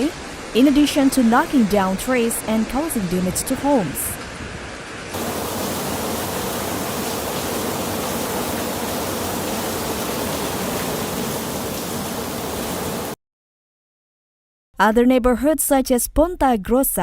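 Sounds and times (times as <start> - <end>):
hail and rain pelting down: 5.2 - 13.2.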